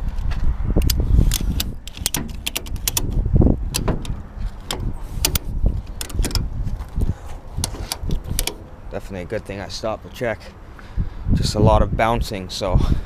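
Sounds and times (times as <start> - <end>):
wind rumble on microphone: 0.0 - 13.0
ratchet strap clicking: 0.8 - 6.5, 7.6 - 8.8.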